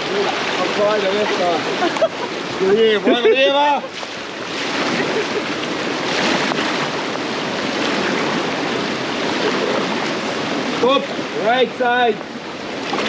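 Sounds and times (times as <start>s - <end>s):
paddle strokes splashing: 0.0s - 13.0s
whitewater rushing: 0.0s - 13.0s.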